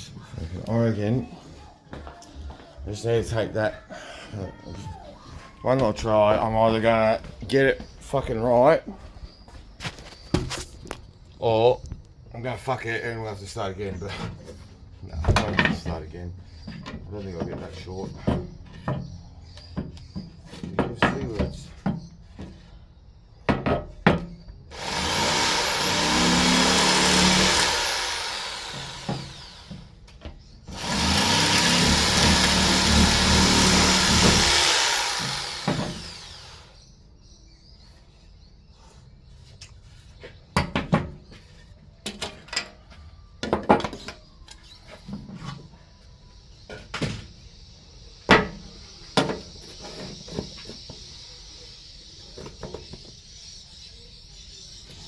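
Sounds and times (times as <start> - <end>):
power tool motor whine: 24.7 - 29.9, 30.7 - 36.8.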